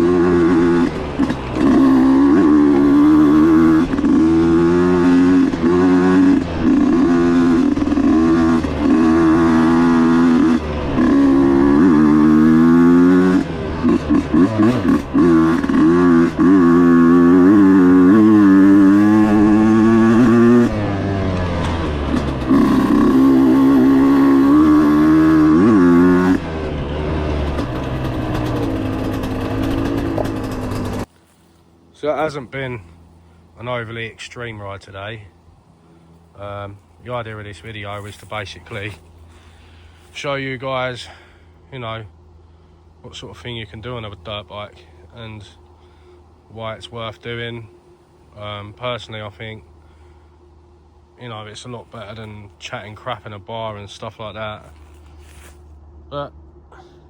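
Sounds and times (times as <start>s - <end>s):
dirt bike engine revving: 0.0s - 31.1s, 35.8s - 41.4s.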